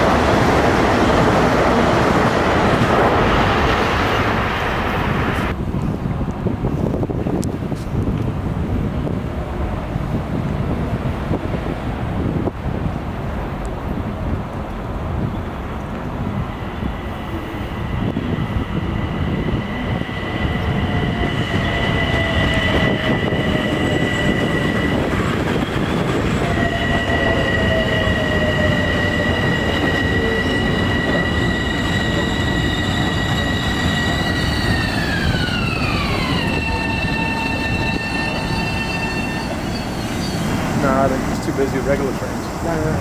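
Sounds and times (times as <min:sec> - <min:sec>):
high train whine: 0:00.0 - 0:43.0
train rumbling past: 0:00.0 - 0:43.0.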